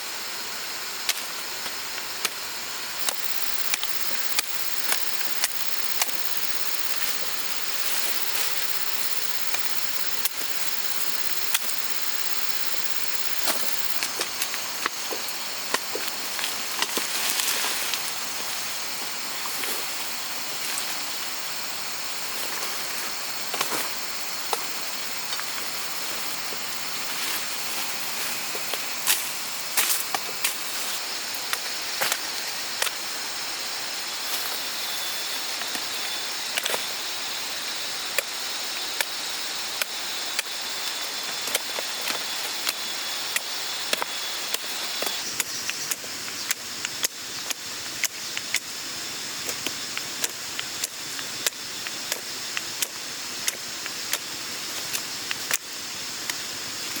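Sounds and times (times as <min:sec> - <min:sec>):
high-pitched hiss: 0:00.0 - 0:57.0
sharp knocks and snaps: 0:49.4 - 0:55.7.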